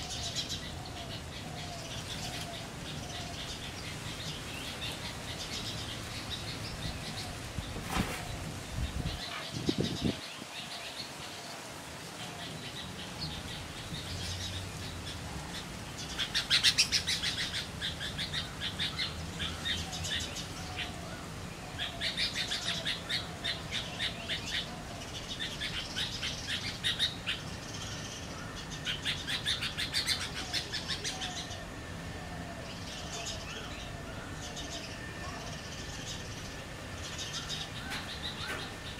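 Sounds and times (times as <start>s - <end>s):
birds chattering: 0.0s - 38.9s.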